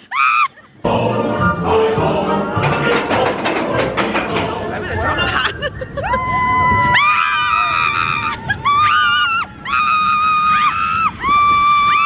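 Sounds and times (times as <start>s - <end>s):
people screaming: 0.0s - 0.7s, 5.4s - 12.0s.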